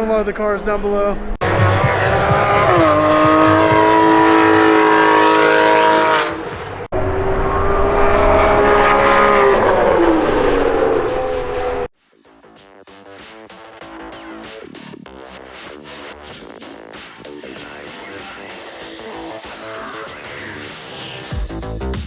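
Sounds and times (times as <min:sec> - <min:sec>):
race car engines: 0:00.0 - 0:11.9.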